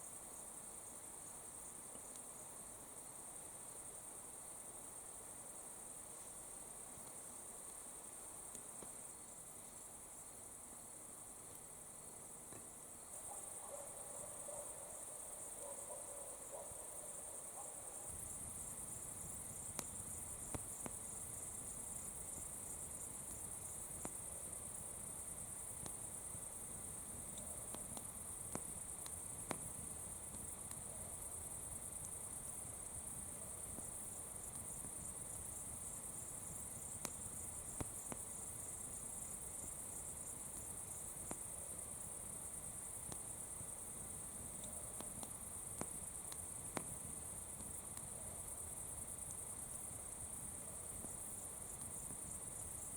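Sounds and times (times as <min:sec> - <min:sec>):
crickets chirring: 0:00.0 - 0:52.9
faint sharp clicks: 0:01.9 - 0:02.3, 0:08.5 - 0:09.0, 0:19.7 - 0:21.0, 0:27.3 - 0:29.7, 0:44.6 - 0:47.0.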